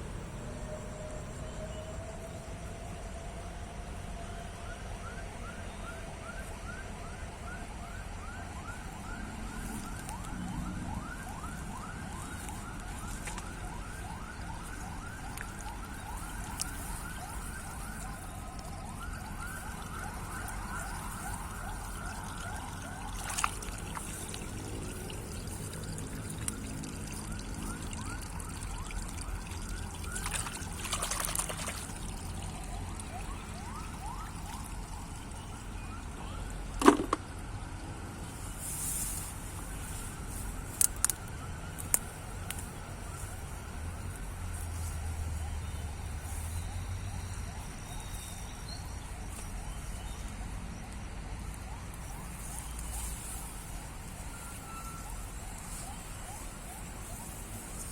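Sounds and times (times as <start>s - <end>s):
water splash: 15.3s - 35.4s.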